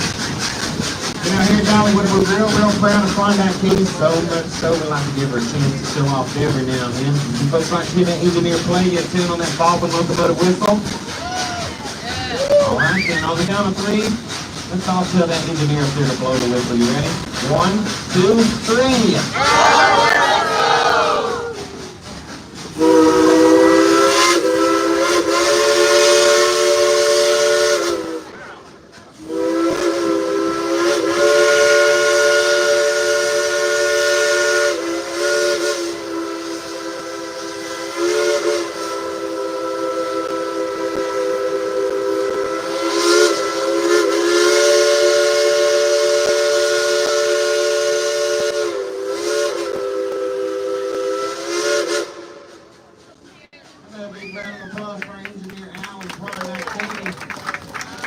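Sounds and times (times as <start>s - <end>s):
steam locomotive chime whistle: 22.8s - 28.4s, 29.2s - 52.8s.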